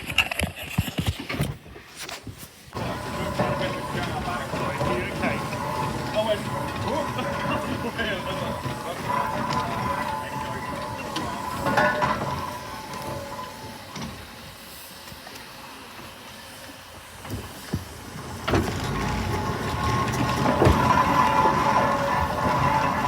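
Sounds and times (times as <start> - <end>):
steam engine mechanical clatter: 1.0 - 23.0.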